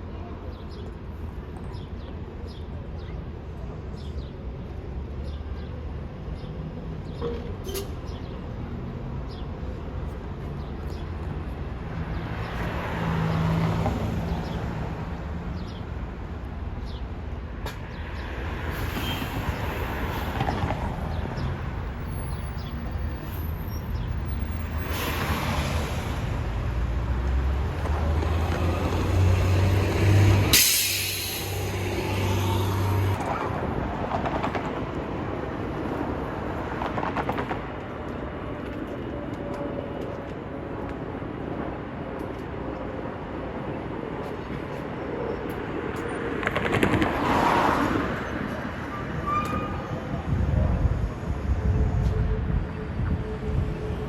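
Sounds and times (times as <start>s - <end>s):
street traffic passing: 0.0s - 54.0s
loud hiss: 30.5s - 32.0s.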